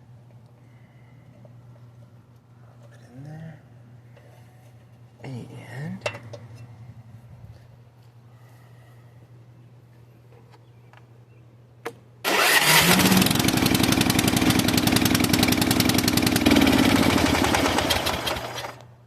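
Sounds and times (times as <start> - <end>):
riding mower engine cranking and running: 12.2 - 18.9.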